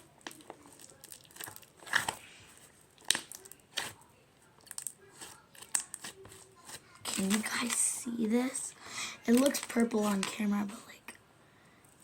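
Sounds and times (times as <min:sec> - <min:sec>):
slime squishing and crackling: 0:00.0 - 0:08.0, 0:09.3 - 0:10.5.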